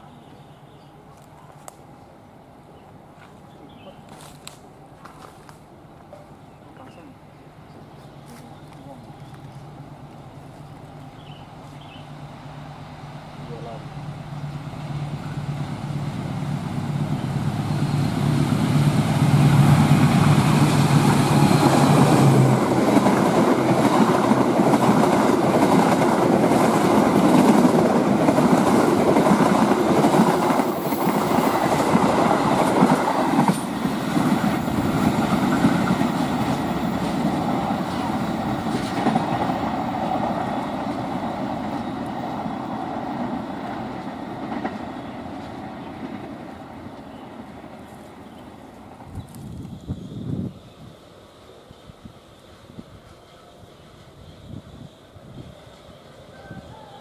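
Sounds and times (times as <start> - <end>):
locomotive engine drone: 8.6 - 26.5
train wheels clattering on rails: 18.4 - 47.1.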